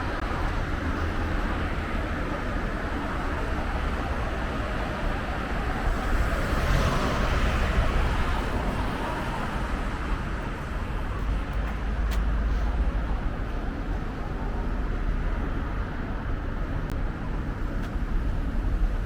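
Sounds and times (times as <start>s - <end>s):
low traffic rumble: 0.0s - 19.0s
car passing: 3.4s - 11.6s.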